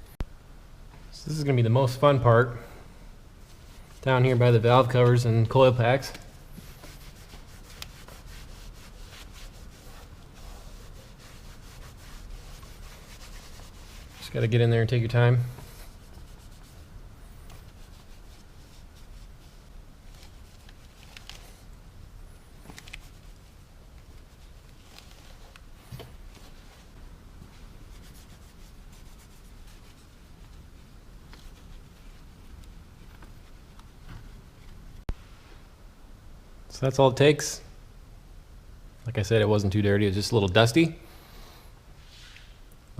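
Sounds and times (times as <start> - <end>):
towel wiping engine parts: 3.4 - 21.7, 22.6 - 32.4.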